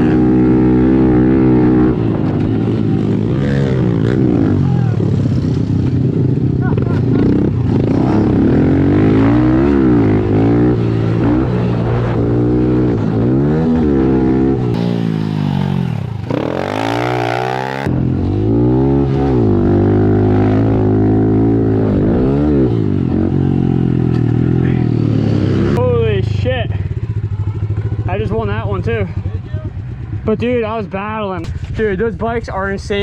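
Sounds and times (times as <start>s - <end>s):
motorbike engine revving: 0.0s - 25.8s.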